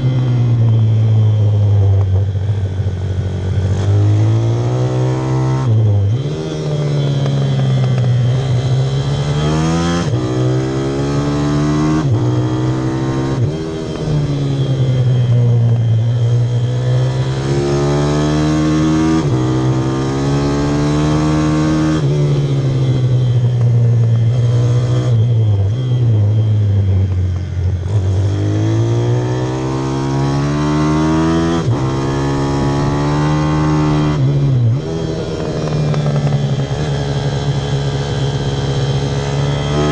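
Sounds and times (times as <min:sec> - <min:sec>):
pit bike engine revving: 0:03.4 - 0:26.6, 0:27.7 - 0:39.9.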